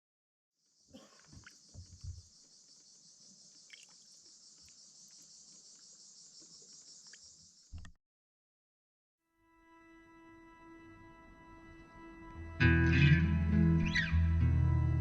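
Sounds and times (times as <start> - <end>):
high-pitched insect chorus: 0.6 - 7.8.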